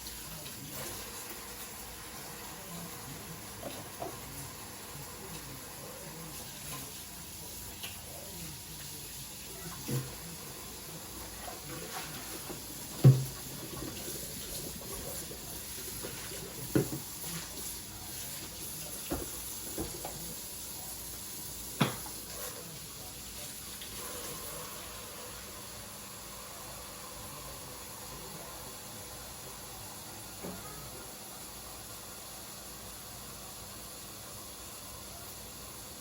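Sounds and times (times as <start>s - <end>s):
tap water running into sink: 0.0s - 26.3s
objects knocking and clunking: 12.4s - 14.0s, 16.0s - 17.2s.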